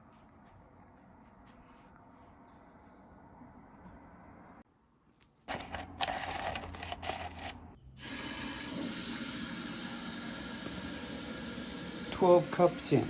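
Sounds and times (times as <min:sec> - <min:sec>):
coffee maker hissing: 0:08.0 - 0:13.0.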